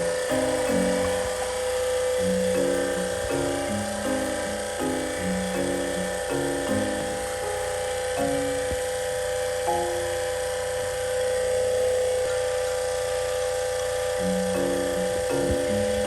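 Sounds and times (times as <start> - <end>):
background music notes: 0.0 - 10.5, 14.2 - 16.0
small electric motor whining: 0.0 - 16.0.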